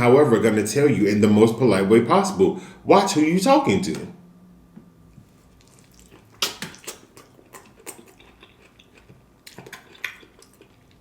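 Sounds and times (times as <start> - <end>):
wet eating clicks: 5.6 - 10.8.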